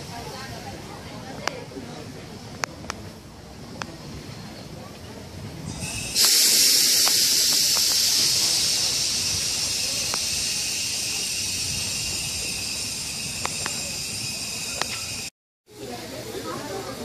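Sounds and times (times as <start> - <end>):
train venting pressure hiss: 5.7 - 17.0
faint clicks: 10.0 - 10.3.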